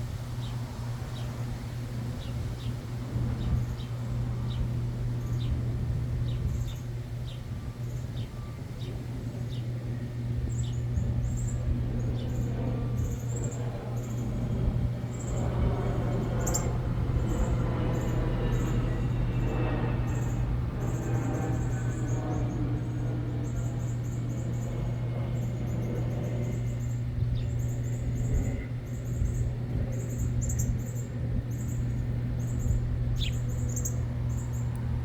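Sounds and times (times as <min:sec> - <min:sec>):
background traffic rumble: 0:00.0 - 0:35.0
steady low hum: 0:00.0 - 0:35.0
small birds chirping: 0:00.4 - 0:35.0.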